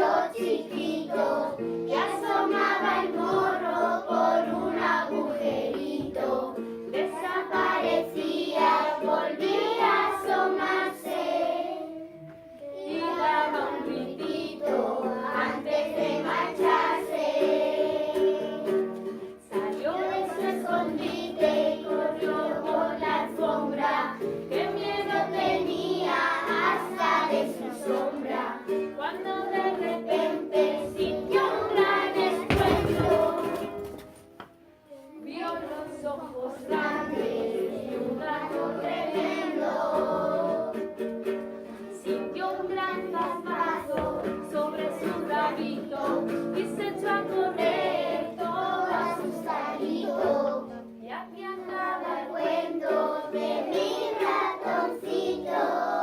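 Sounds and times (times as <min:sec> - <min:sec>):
children singing together: 0:00.0 - 0:34.4, 0:35.0 - 0:56.0
instrumental accompaniment: 0:35.5 - 0:51.0.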